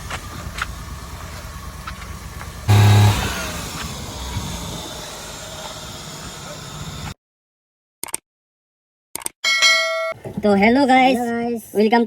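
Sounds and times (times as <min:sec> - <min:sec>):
vehicle engine running: 0:00.0 - 0:07.2
short pitched horn blast: 0:02.7 - 0:03.7.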